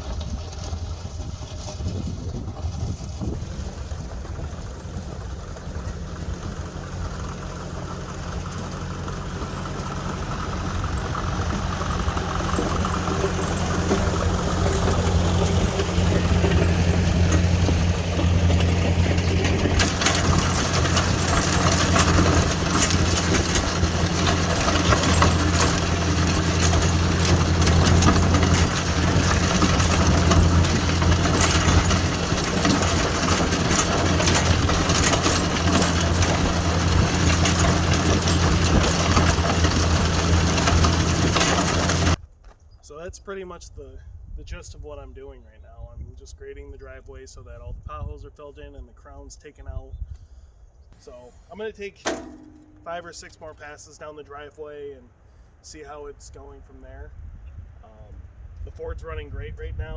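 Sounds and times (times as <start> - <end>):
blade scraping gravel: 0.0 - 42.2
tractor engine running: 0.0 - 42.2, 51.0 - 54.4.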